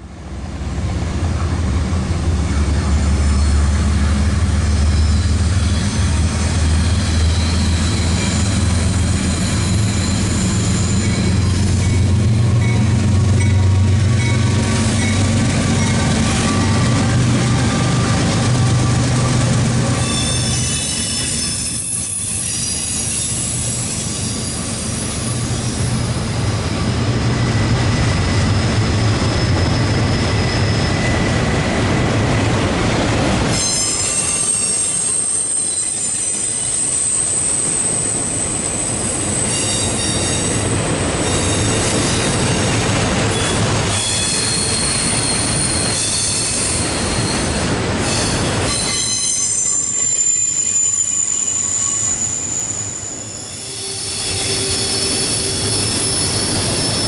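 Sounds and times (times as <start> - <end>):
locomotive engine drone: 0.0 - 33.6
rail clatter: 1.4 - 34.7
high-pitched wheel squeal: 3.0 - 12.8, 20.0 - 25.9, 27.9 - 31.4, 33.5 - 57.0.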